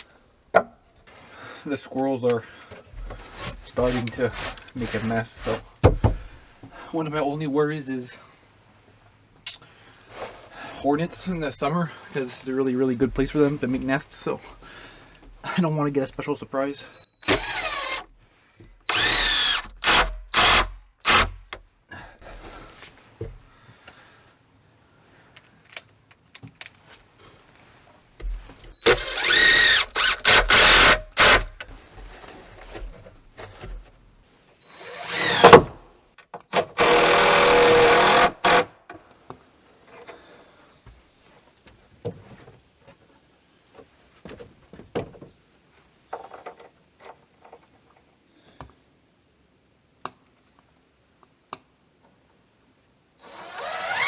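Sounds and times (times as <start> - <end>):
power drill driving screws: 17.2 - 18.1, 18.9 - 21.5, 28.8 - 31.6, 34.6 - 35.8, 36.5 - 38.8, 53.2 - 54.0.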